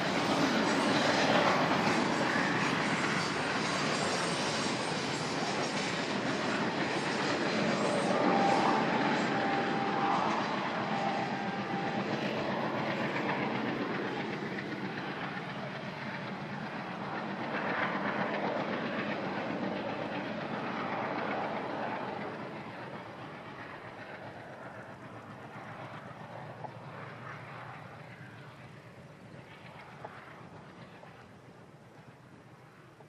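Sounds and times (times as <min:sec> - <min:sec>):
train wheels clattering over rails: 0:00.0 - 0:27.4.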